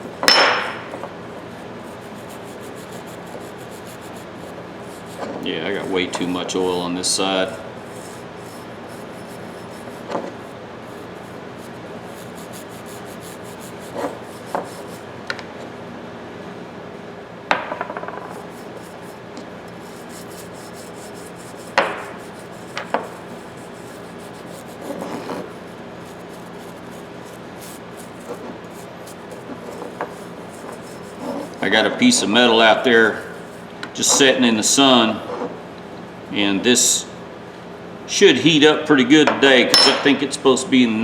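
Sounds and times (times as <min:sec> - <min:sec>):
steady low hum: 0:00.0 - 0:34.8
rubbing and wiping metal: 0:01.4 - 0:15.0, 0:18.2 - 0:34.3.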